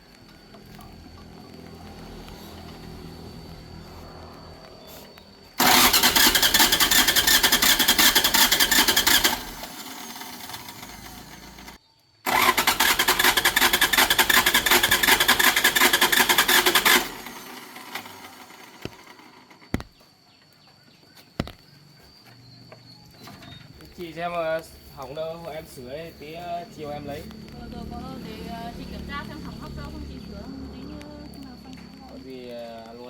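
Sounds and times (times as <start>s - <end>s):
engine starter cranking: 5.6s - 20.0s.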